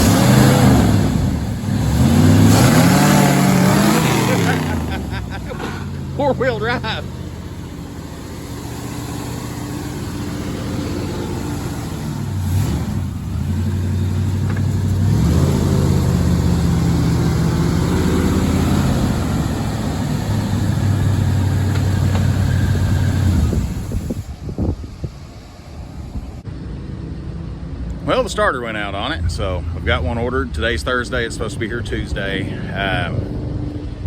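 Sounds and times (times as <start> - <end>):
pickup truck engine revving: 0.0 - 26.4.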